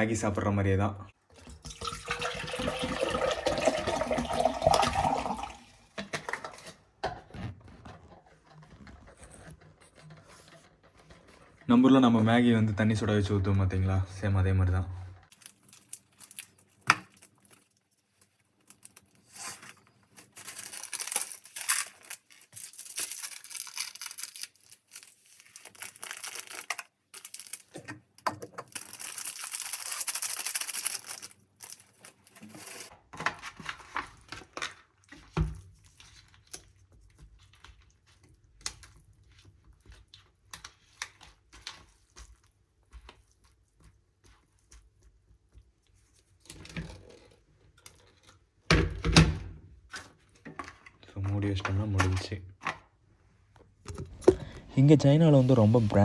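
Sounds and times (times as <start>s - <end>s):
plastic packaging crinkling and tearing: 15.3s - 27.9s, 28.5s - 32.9s.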